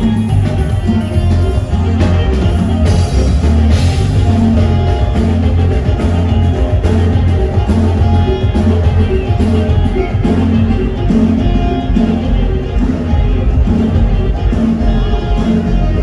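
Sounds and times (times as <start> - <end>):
band playing through sound system: 0.0 - 16.0.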